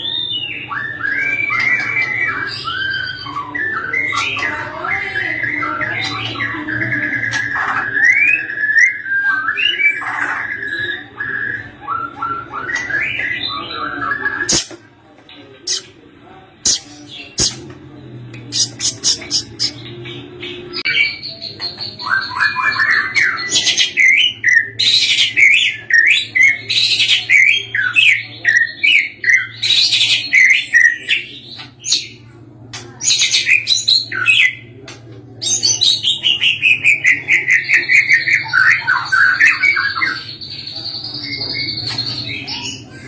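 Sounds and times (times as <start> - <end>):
bird singing whistles and trills: 0.0 - 14.7.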